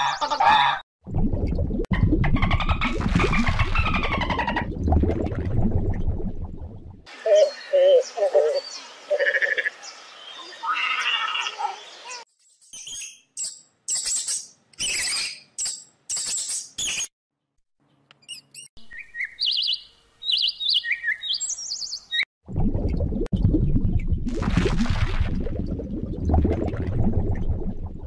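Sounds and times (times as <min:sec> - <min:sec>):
bubbling aquarium water: 0:01.0 - 0:07.1, 0:22.4 - 0:28.0
bird-like chirps and tweets: 0:17.9 - 0:22.2.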